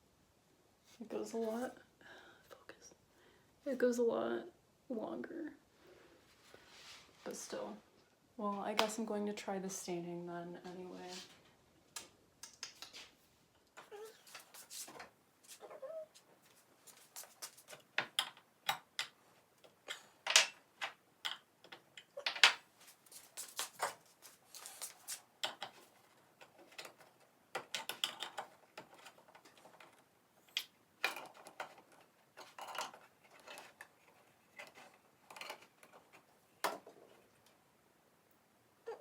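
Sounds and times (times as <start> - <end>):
small objects being handled: 12.0 - 37.6.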